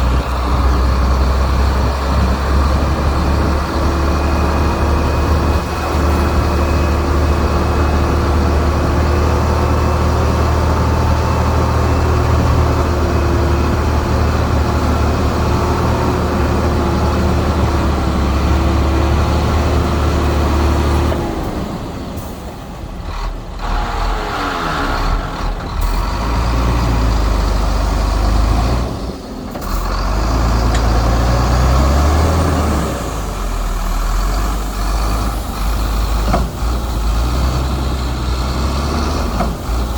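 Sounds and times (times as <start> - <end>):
heavy diesel engines under load: 0.0 - 39.9.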